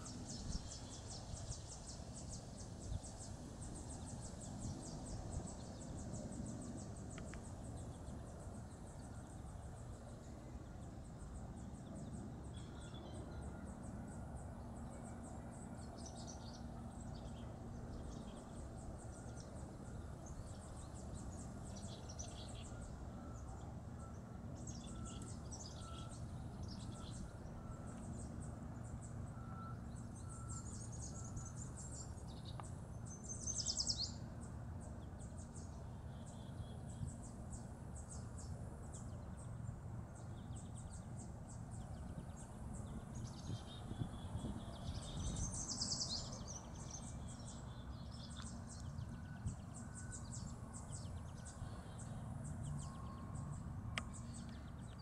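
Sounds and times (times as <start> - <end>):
small birds trilling and calling: 14.9 - 55.0.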